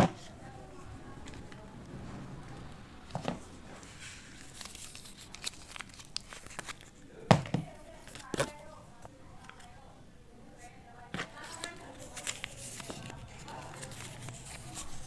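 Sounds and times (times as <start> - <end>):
packaging tearing and crinkling: 4.4 - 7.0, 11.3 - 15.0.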